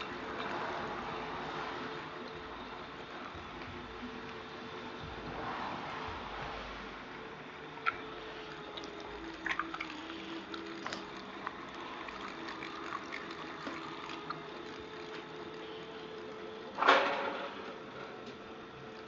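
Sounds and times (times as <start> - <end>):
meat grinder motor hum: 0.0 - 19.0
wet squishing: 7.8 - 16.7.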